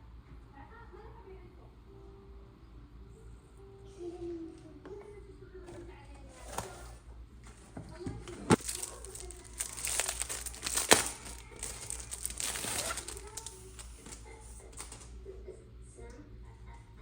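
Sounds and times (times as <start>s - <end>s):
packaging rustling: 6.3s - 7.0s, 8.3s - 15.1s.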